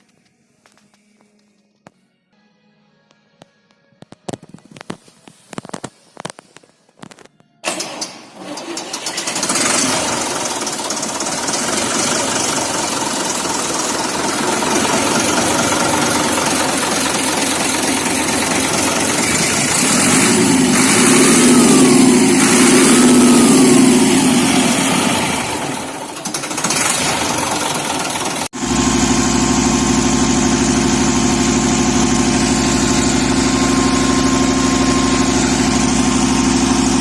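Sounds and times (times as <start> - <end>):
tractor diesel engine running: 7.1 - 37.0
engine revving: 8.4 - 37.0.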